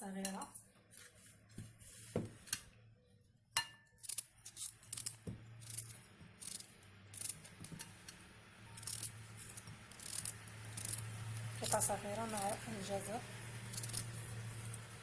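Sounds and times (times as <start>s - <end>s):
knife cutting beetroot: 4.0s - 7.8s, 8.8s - 12.8s, 13.5s - 15.0s.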